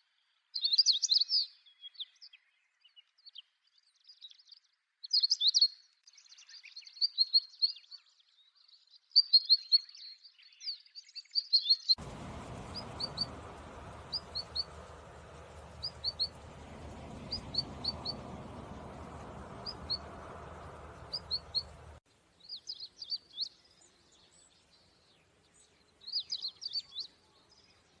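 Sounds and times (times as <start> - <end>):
small songbirds chirping: 0.2 - 28.0
steady rushing noise: 12.0 - 22.0.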